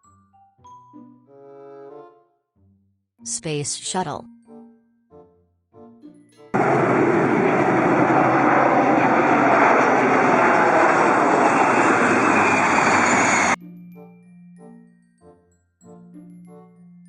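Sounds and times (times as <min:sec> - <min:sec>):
rocket engine rumble: 0:06.6 - 0:13.6.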